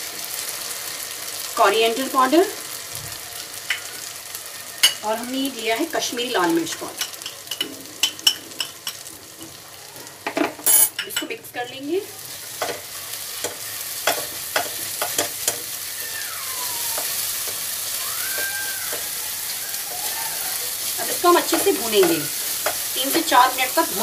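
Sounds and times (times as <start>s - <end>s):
spices sizzling in oil: 0.0s - 24.0s
spatula scraping a wok: 12.3s - 16.1s, 17.0s - 24.0s.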